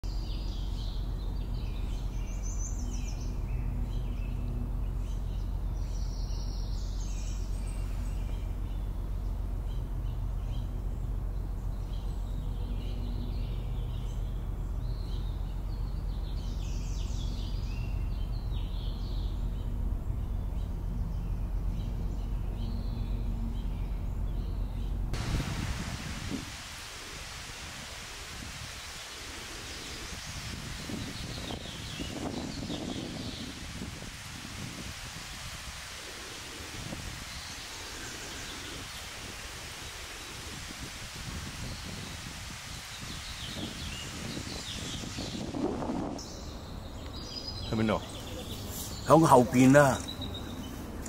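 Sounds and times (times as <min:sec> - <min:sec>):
songbirds chirping and singing: 0:00.0 - 0:25.2, 0:29.6 - 0:33.9, 0:42.8 - 0:51.0.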